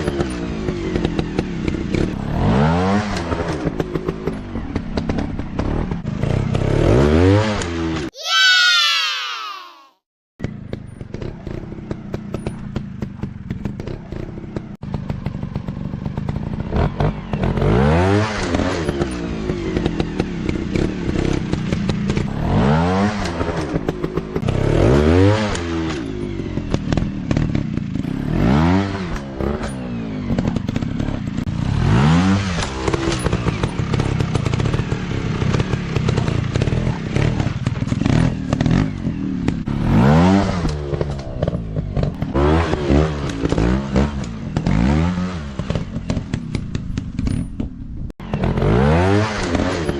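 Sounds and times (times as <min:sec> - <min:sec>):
dirt bike engine revving: 0:00.0 - 0:08.0, 0:11.1 - 0:46.9, 0:48.2 - 0:49.9.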